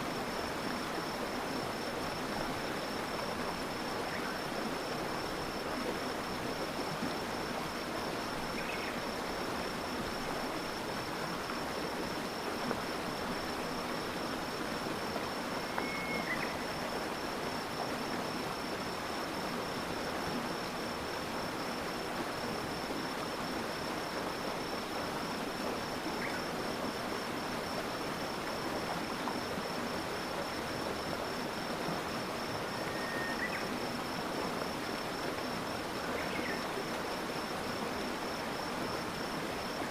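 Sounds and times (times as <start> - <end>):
stream flowing over stones: 0.0 - 39.9
high-pitched insect trill: 15.6 - 16.9, 32.6 - 33.7.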